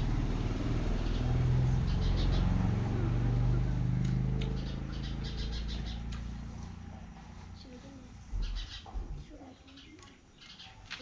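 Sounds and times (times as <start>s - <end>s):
vehicle engine running: 0.0s - 8.7s
bird chirps: 1.0s - 2.8s, 4.2s - 6.8s, 8.3s - 11.0s.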